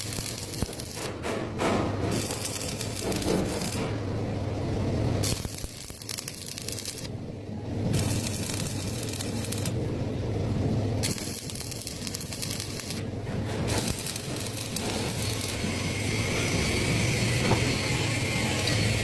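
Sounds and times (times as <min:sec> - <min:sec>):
lathe tool cutting with crackling hiss: 0:00.0 - 0:01.1, 0:02.1 - 0:03.9, 0:13.7 - 0:19.0
steady high whine: 0:02.0 - 0:19.0.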